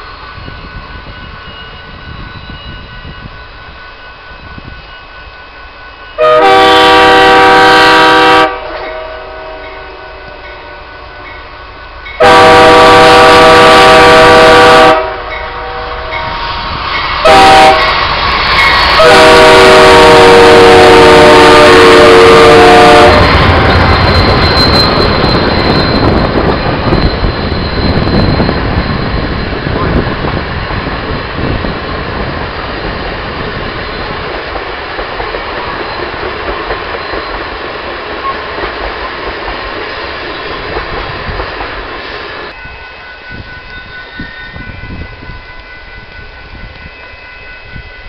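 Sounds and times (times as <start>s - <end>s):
train passing with heavy rumble: 0.0s - 48.0s
locomotive air horn chord: 6.2s - 11.4s, 12.2s - 16.3s, 17.2s - 18.1s, 19.0s - 23.6s.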